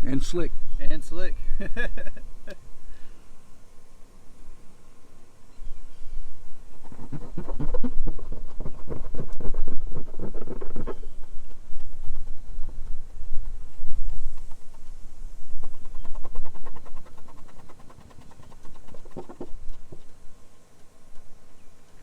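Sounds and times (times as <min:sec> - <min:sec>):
towel rubbing painted panel: 0:06.6 - 0:20.2.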